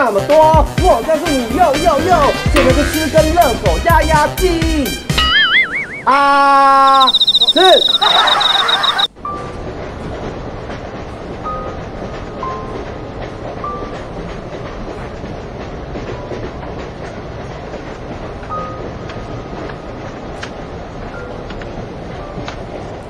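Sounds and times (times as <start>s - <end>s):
train rumble: 0.0s - 5.2s, 6.9s - 23.0s
short high squeaks: 6.9s - 9.1s
wheels clicking: 6.9s - 9.1s.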